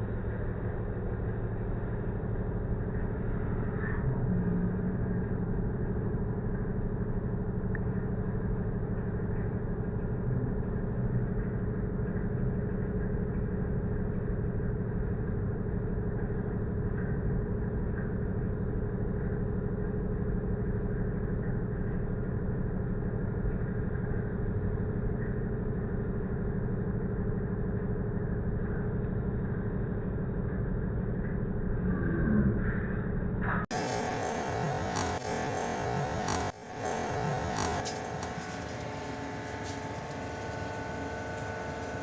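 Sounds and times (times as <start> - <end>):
ship engine rumbling: 33.7 - 42.0.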